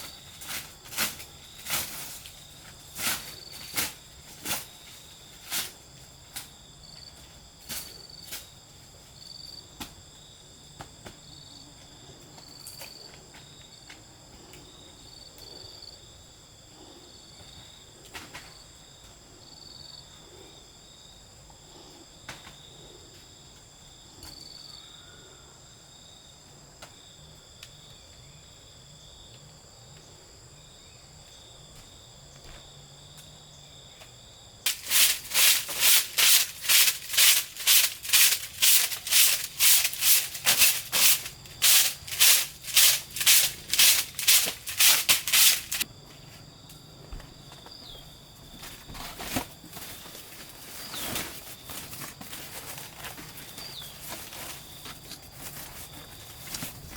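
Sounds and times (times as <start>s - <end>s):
insects trilling: 0.0s - 56.9s
hand tool rasping a surface: 34.7s - 45.8s.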